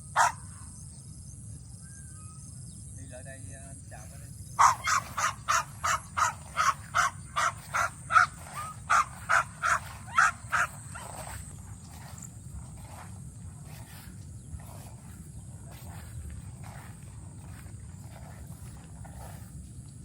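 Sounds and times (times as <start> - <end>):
animal short calls: 4.6 - 12.2.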